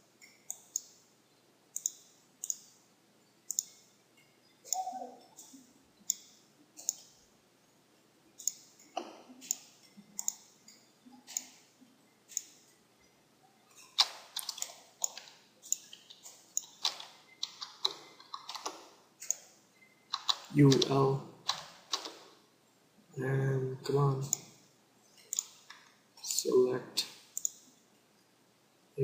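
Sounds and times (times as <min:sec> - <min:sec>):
computer mouse clicks: 0:00.2 - 0:01.0, 0:01.7 - 0:02.8, 0:03.5 - 0:03.9, 0:04.7 - 0:07.2, 0:08.4 - 0:11.7, 0:12.3 - 0:12.7, 0:13.8 - 0:22.3, 0:25.2 - 0:25.8, 0:27.0 - 0:27.7.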